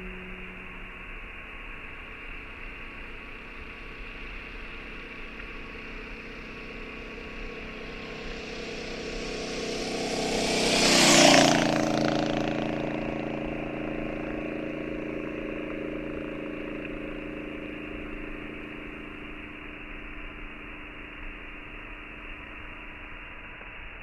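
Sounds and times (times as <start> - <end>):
motor vehicle passing close by: 5.1 - 20.6.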